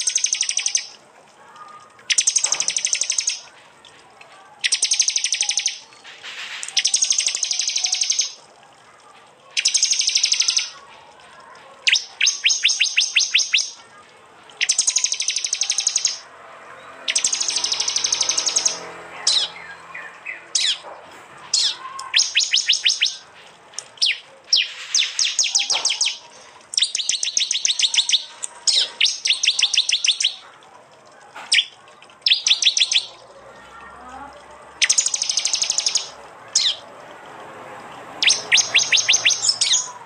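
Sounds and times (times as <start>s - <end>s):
bird song rapid repeated notes: 0.0s - 1.0s, 2.1s - 3.5s, 4.6s - 5.9s, 6.5s - 8.4s, 9.6s - 10.8s, 11.8s - 13.9s, 14.6s - 16.2s, 17.0s - 20.8s, 21.5s - 30.5s, 31.5s - 33.2s, 34.8s - 36.8s, 38.2s - 40.0s.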